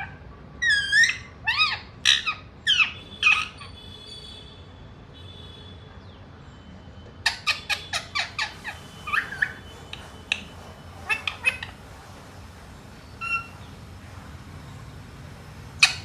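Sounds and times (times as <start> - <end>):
parrot chirping: 0.0 - 3.8, 7.2 - 12.2, 13.0 - 13.8, 15.5 - 16.0
parrot squawks: 0.0 - 3.9, 7.2 - 11.9, 13.2 - 13.7, 15.8 - 16.0.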